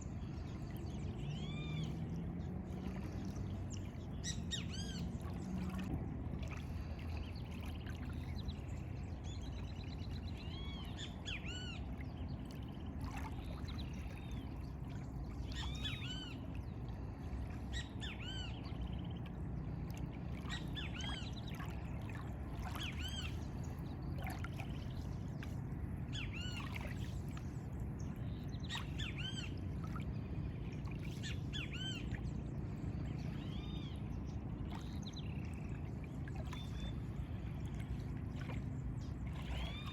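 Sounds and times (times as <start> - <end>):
low background rumble: 0.0 - 39.9
birds chirping: 20.3 - 39.9.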